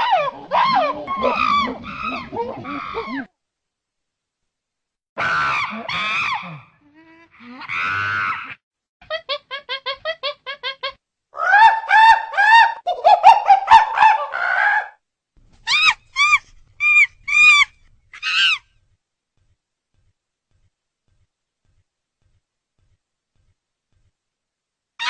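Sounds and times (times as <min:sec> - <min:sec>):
chimpanzee hooting and screaming: 0:00.0 - 0:03.3, 0:05.2 - 0:06.6, 0:07.6 - 0:08.6, 0:11.4 - 0:15.0, 0:15.7 - 0:18.6.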